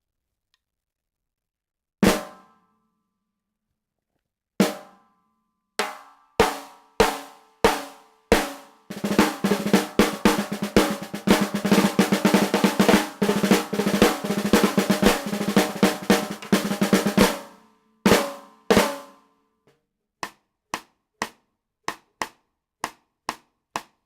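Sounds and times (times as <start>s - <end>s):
snare drum hits: 2.0s - 2.5s, 5.8s - 17.5s.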